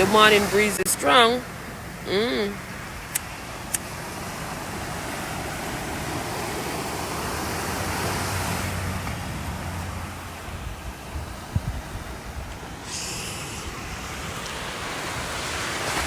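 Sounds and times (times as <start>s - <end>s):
low wind rumble: 0.0s - 16.0s
sea surf washing ashore: 0.0s - 16.0s
wind buffeting microphone: 3.4s - 16.0s.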